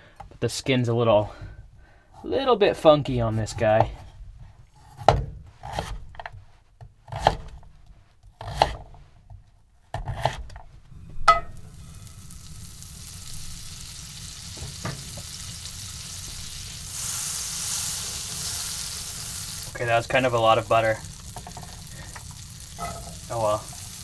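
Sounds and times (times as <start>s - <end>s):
butter sizzling in a pan: 11.3s - 24.0s.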